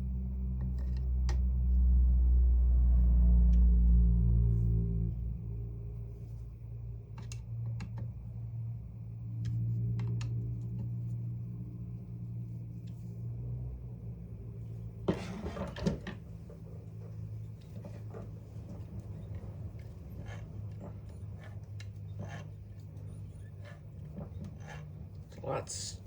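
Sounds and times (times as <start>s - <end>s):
steady low hum: 0.0s - 26.0s
parts clattering: 14.9s - 25.9s.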